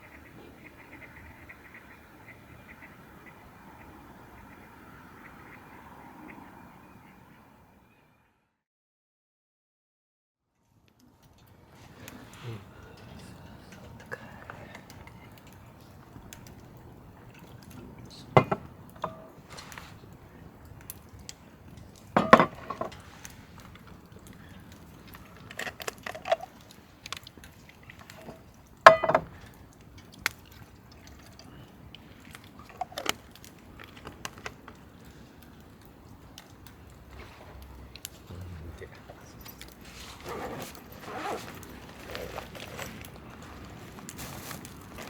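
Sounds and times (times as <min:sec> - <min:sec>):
metal cookware clinking: 0:18.3 - 0:19.5, 0:22.1 - 0:23.0, 0:28.2 - 0:29.4.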